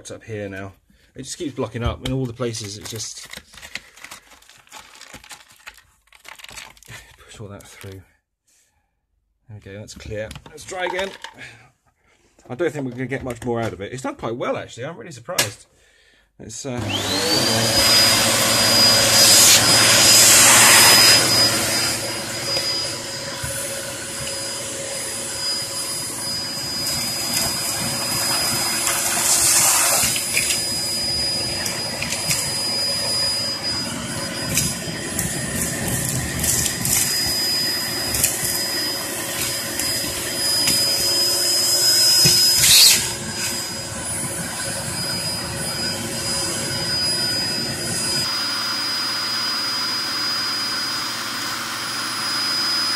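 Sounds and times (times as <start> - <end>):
vacuum cleaner motor whine: 16.8 - 52.9
vacuum sucking up ash: 16.8 - 52.9.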